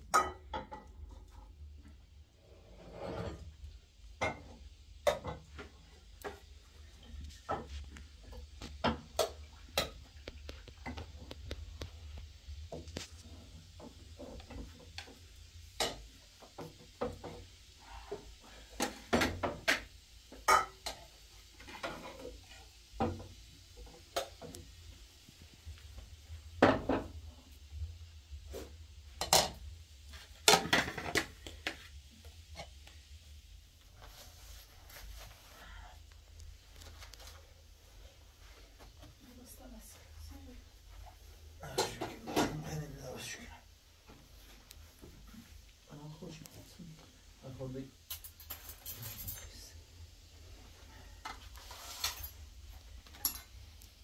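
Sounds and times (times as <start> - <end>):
dishes and cutlery clinking: 0.1 - 1.3, 18.8 - 23.2, 41.6 - 42.8, 48.0 - 49.7, 53.0 - 53.6.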